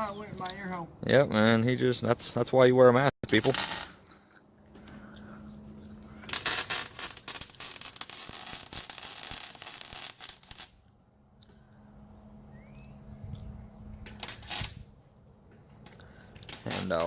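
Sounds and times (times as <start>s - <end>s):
steady low hum: 0.0s - 9.2s, 10.4s - 17.0s
welding arc crackling: 3.2s - 4.0s, 6.2s - 10.8s, 14.0s - 14.9s, 16.4s - 17.0s.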